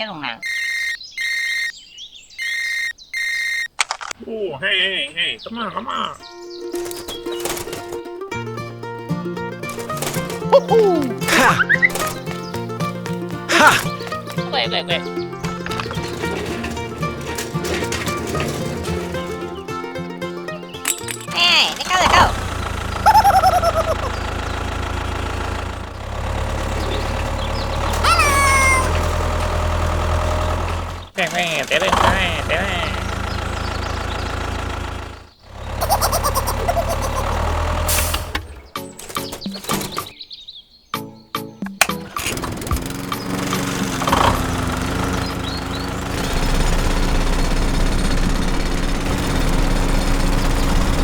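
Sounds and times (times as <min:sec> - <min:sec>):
high wavering cries: 0:00.4 - 0:03.7, 0:23.0 - 0:24.2, 0:27.9 - 0:29.1, 0:35.8 - 0:37.6
small motor humming: 0:15.1 - 0:40.0, 0:42.0 - 0:51.0.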